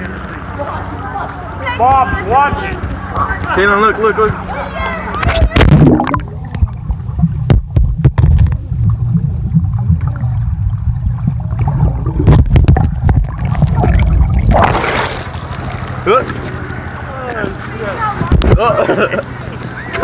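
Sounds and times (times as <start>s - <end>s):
muffled water sloshing and splashing: 5.2s - 19.9s
knocks and bumps on microphone: 7.4s - 8.6s.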